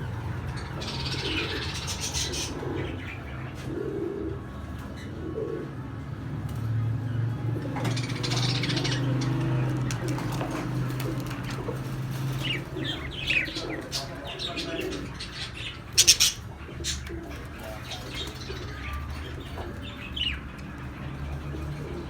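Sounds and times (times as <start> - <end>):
budgerigars chirping: 0.4 - 3.4, 7.8 - 22.0.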